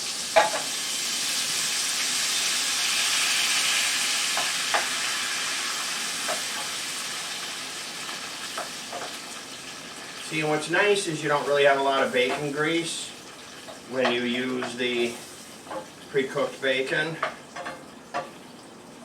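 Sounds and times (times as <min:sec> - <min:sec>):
vegetables sizzling in a frying pan: 0:00.0 - 0:18.8
utensil clicking against pan: 0:17.2 - 0:18.4.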